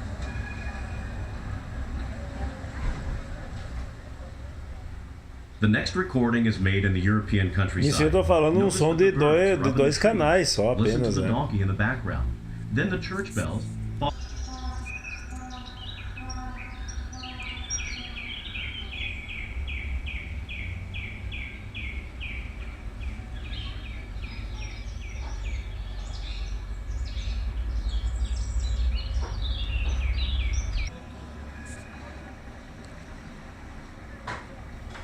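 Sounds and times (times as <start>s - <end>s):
steady low rumble: 3.3s - 34.9s
bird chirps: 14.0s - 30.9s.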